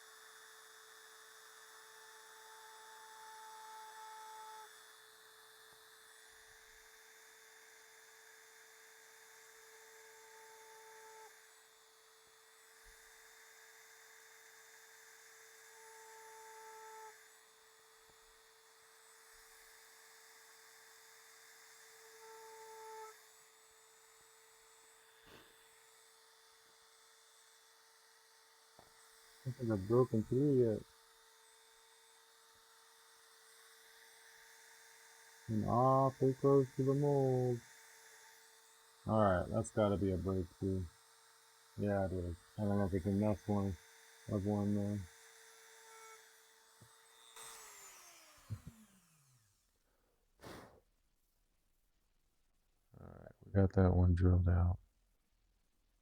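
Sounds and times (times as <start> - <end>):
rotary tool whine: 0.0 - 49.8
soft puff of noise: 50.4 - 50.8.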